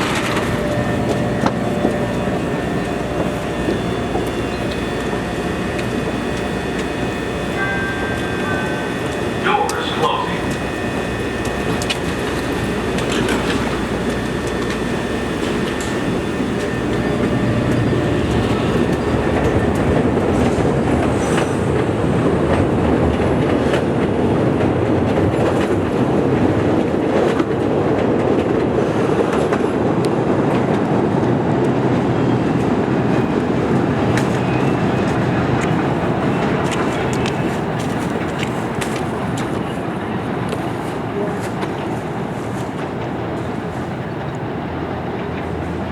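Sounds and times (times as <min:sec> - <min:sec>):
train wheels rumbling on track: 0:00.0 - 0:45.9.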